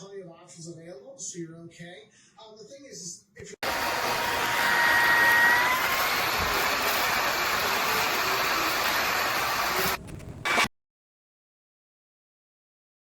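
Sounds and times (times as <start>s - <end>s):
vacuum motor whining: 3.6s - 10.7s.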